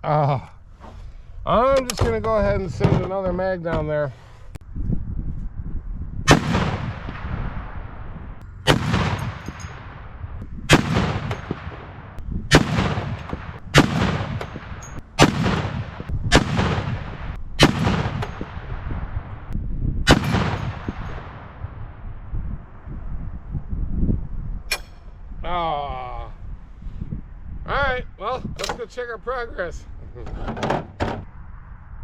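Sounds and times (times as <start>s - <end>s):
rifle shots with echo: 6.3s - 7.9s, 8.6s - 19.0s, 20.1s - 21.8s.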